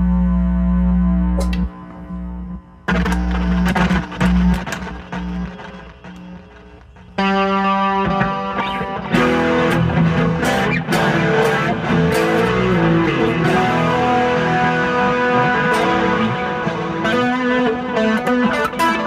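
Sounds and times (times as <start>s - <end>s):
electric guitar chords and notes: 0.0s - 19.0s.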